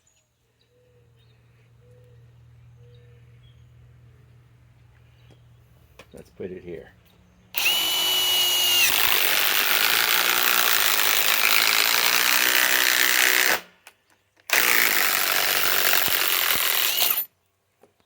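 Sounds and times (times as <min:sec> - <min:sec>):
impact wrench hammering screw: 0:07.6 - 0:13.7, 0:14.5 - 0:17.3.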